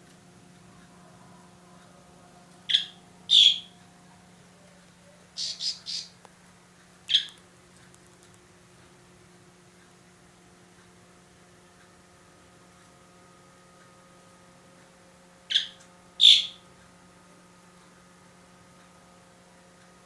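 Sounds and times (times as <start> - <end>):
bird squawking: 2.7 - 3.8, 5.0 - 6.2, 7.1 - 7.4, 15.5 - 16.6.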